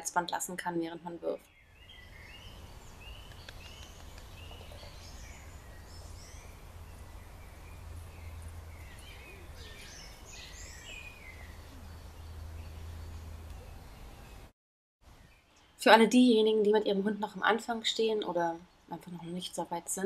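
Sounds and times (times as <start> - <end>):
small birds chirping: 1.3 - 14.5
steady low rumble: 2.8 - 14.3.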